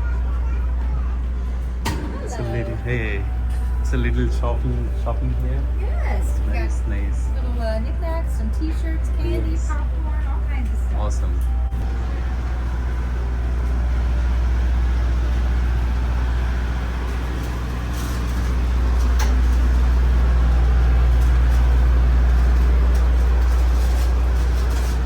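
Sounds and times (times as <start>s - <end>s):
diesel locomotive idling: 0.0s - 25.0s.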